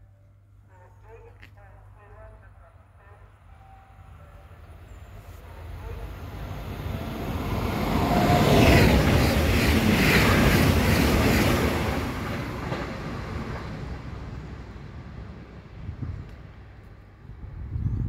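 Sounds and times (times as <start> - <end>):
train rushing past: 3.6 - 17.7.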